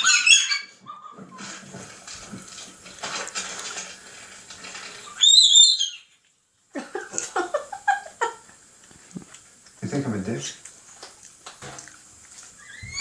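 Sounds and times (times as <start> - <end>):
faint background hiss: 0.8 - 13.0
cockatoo shrill call: 5.0 - 6.1.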